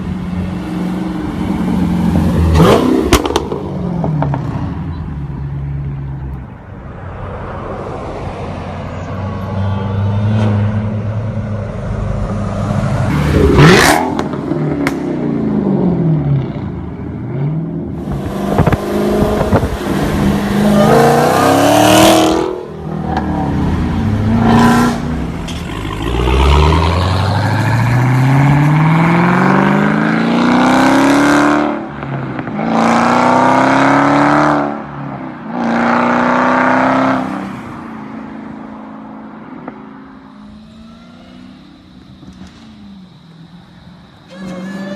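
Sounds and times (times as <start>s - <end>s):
loud car engine revving: 0.0s - 4.7s, 9.9s - 37.4s, 40.1s - 43.3s.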